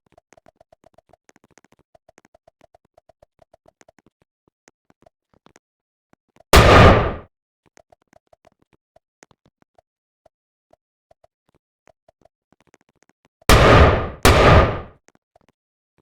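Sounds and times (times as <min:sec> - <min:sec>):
loud bangs: 0:06.6 - 0:07.2, 0:13.5 - 0:14.9.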